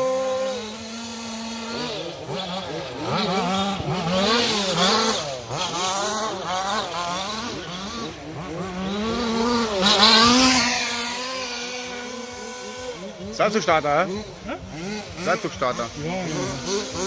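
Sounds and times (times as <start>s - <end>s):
small engines revving: 0.0s - 17.0s.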